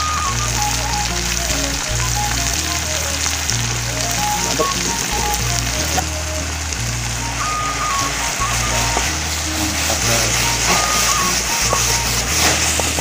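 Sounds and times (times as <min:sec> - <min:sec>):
background music: 0:00.0 - 0:13.0
mushrooms sizzling in a pan: 0:00.0 - 0:13.0.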